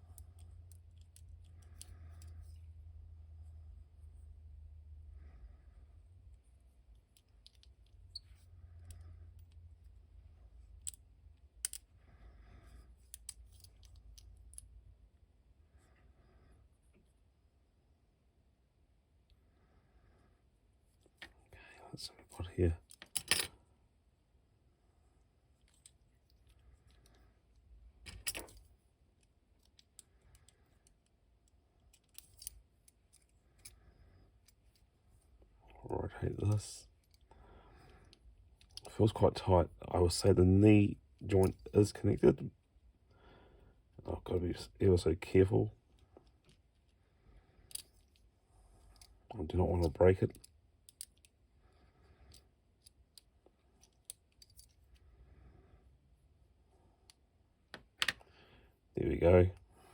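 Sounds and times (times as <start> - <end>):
plastic parts clicking: 57.8 - 58.3.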